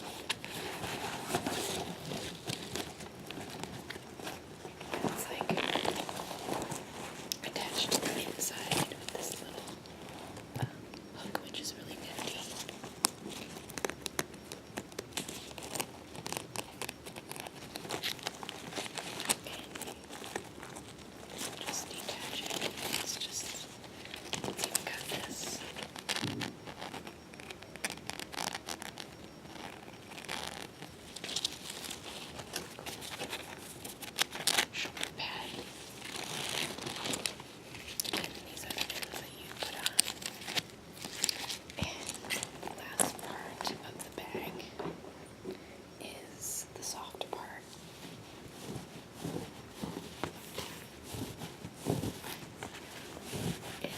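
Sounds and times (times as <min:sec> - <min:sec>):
carrier bag crinkling and clicking: 0:12.2 - 0:43.9.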